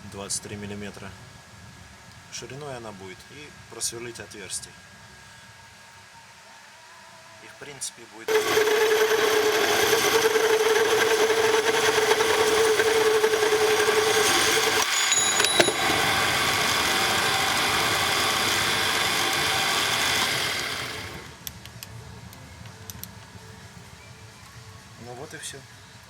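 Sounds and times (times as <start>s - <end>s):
power tool whining on metal: 8.3s - 21.5s
faint clicks: 21.4s - 23.1s.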